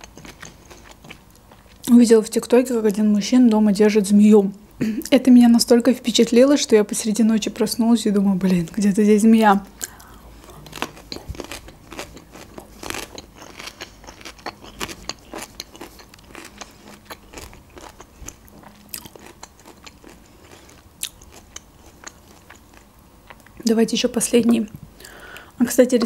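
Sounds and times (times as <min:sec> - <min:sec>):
person chewing food: 0:00.0 - 0:01.9, 0:09.8 - 0:23.6
wet mouth clicks and crunches: 0:09.8 - 0:23.6.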